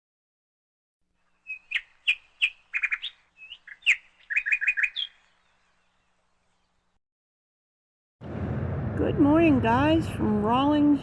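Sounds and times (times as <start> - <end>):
songbird chirping: 1.2 - 7.0.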